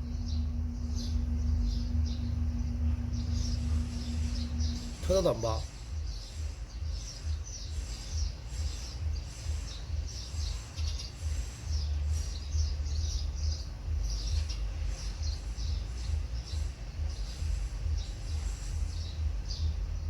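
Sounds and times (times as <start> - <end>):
low rumble: 0.0 - 6.2
small birds chirping: 0.0 - 20.0.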